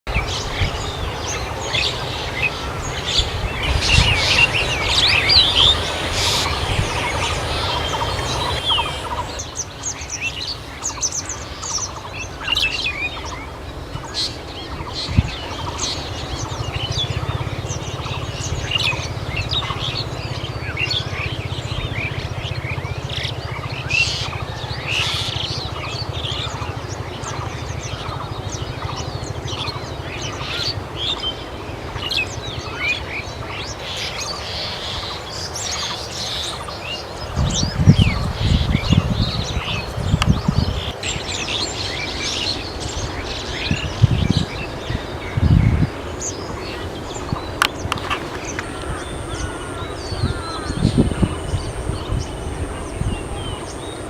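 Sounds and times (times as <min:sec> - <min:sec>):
steady low rumble: 0:00.1 - 0:09.6
birds chirping and calling: 0:00.1 - 0:54.0.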